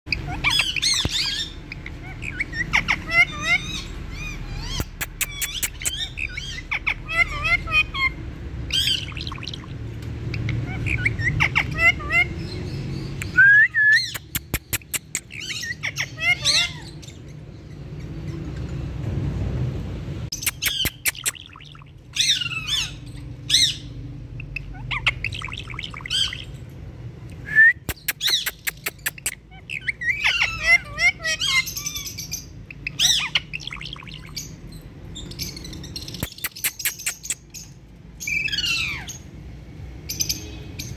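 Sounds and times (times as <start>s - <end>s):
parrots chirping and squawking: 0.1s - 13.4s, 14.0s - 19.0s, 20.3s - 27.2s, 27.9s - 40.9s
sharp clicks: 4.8s - 6.0s, 14.1s - 15.3s, 20.3s - 21.5s, 27.8s - 29.4s, 36.2s - 37.5s
parrot clicks: 14.2s - 15.3s, 20.4s - 21.4s.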